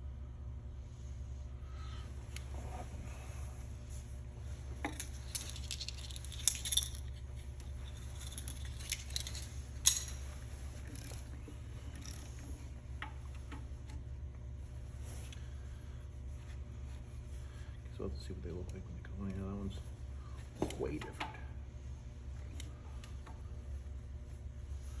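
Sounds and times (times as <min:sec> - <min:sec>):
metal tools clinking: 0:04.8 - 0:11.3.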